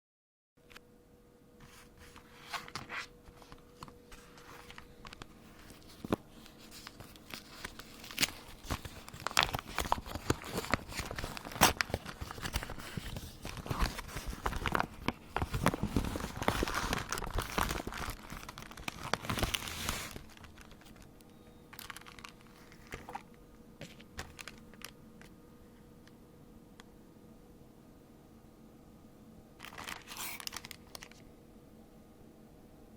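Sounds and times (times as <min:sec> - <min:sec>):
packaging crinkling and tearing: 0:01.7 - 0:25.0, 0:29.6 - 0:31.3.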